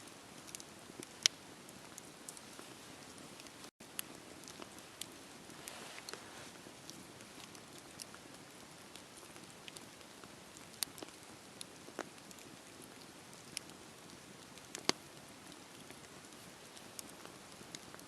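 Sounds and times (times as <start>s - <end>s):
wood fire crackling and popping: 0.1s - 18.0s.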